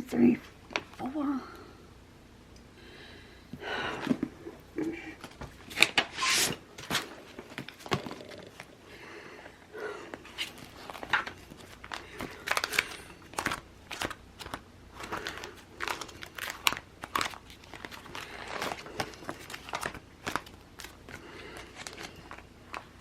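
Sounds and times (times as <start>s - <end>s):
paper crinkling and rustling: 10.2s - 23.0s.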